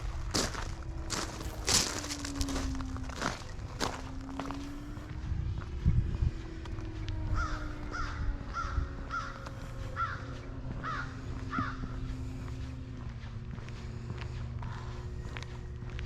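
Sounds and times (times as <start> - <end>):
crow cawing: 7.2 - 12.9.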